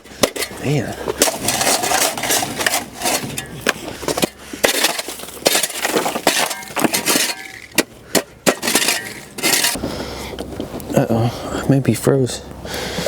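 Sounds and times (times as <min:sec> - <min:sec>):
shovel chipping and scraping ice: 0:00.0 - 0:09.8.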